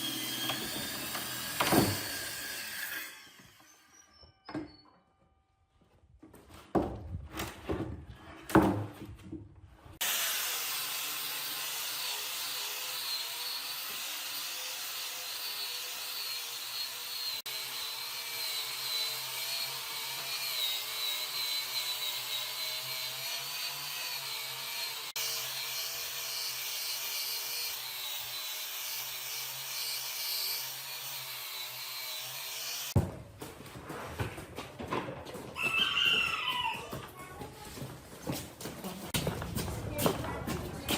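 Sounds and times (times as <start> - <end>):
power tool whining on wood: 0.0 - 5.0, 10.0 - 33.0.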